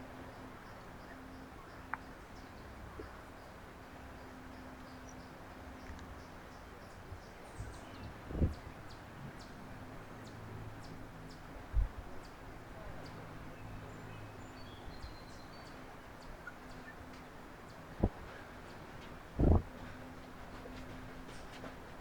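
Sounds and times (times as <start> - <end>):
low steady hum: 0.0 - 22.0
small birds chirping: 0.2 - 21.8
dull low thumps: 8.2 - 8.8, 11.8 - 12.0, 18.0 - 18.3, 19.3 - 20.0.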